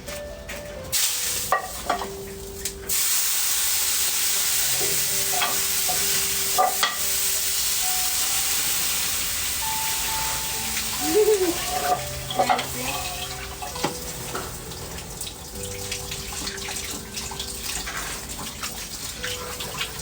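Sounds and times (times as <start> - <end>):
water running into a frying pan: 0.9 - 20.0.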